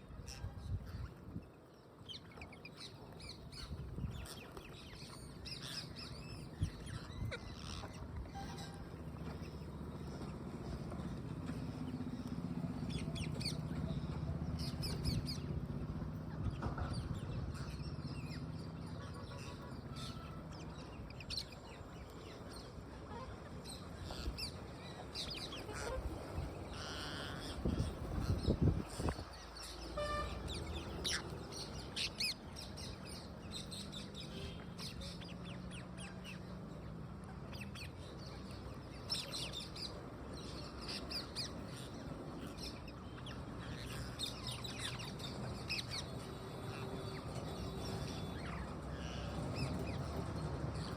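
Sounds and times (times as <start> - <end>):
low steady hum: 0.0 - 50.9
parrots chirping: 2.2 - 11.0, 24.0 - 36.8, 38.9 - 50.9.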